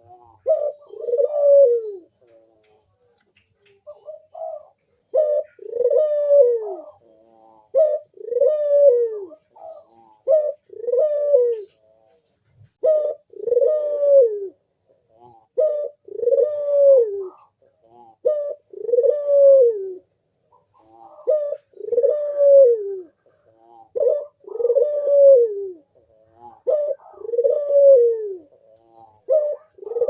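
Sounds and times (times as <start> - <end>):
dove cooing: 0.0 - 30.0.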